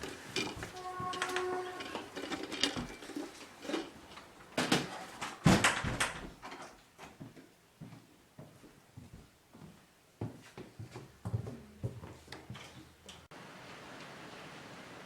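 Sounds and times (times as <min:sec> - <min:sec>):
irregular knocks and clatters: 0:00.0 - 0:06.8.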